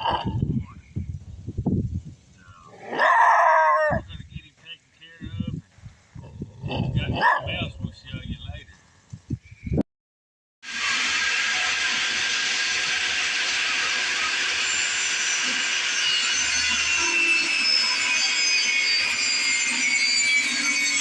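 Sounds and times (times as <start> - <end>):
power tool whirring on wood: 10.6 - 21.0.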